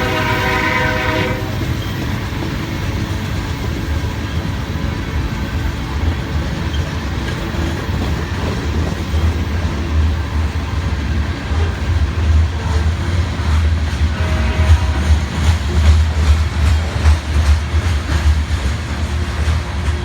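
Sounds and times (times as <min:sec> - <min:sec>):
freight train rumbling past: 0:00.0 - 0:20.0
wheels on rails: 0:01.4 - 0:20.0.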